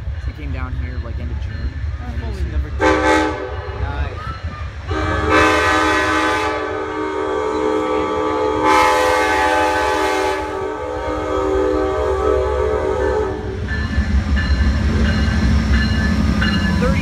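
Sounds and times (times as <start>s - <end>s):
train rumbling: 0.0s - 17.0s
locomotive horn chord: 2.8s - 3.7s, 4.9s - 13.6s.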